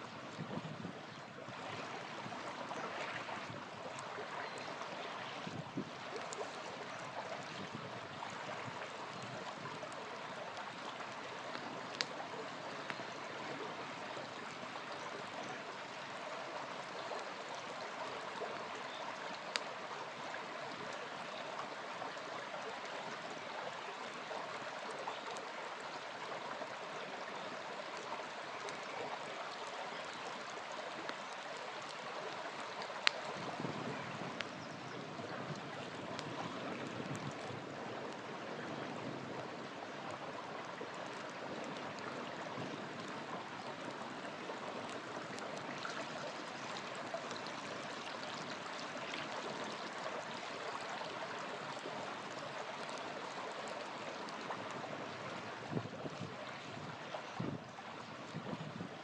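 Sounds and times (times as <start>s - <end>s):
river flowing: 0.0s - 59.0s
campfire crackling and popping: 3.8s - 15.5s, 16.5s - 22.1s, 26.1s - 34.5s, 35.2s - 54.7s.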